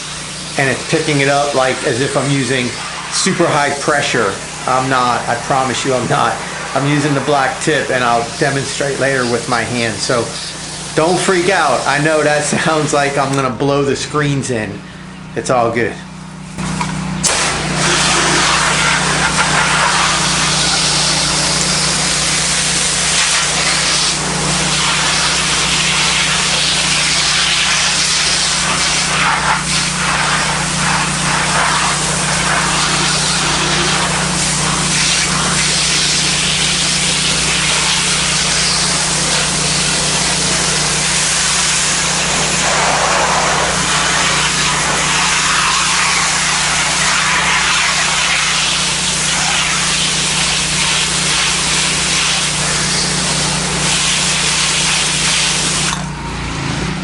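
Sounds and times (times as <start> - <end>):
pressure washer spraying: 0.0 - 13.6, 16.1 - 56.8.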